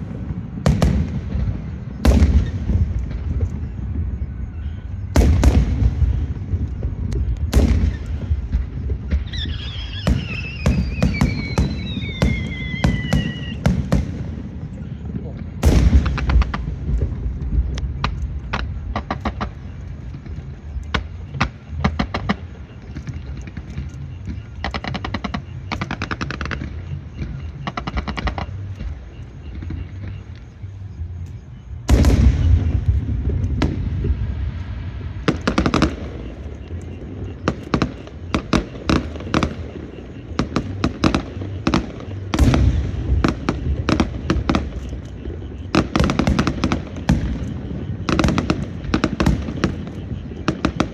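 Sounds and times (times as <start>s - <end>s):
firecrackers crackling and banging: 0.0s - 50.9s
heavy firework burst: 5.1s - 19.7s, 31.9s - 50.9s.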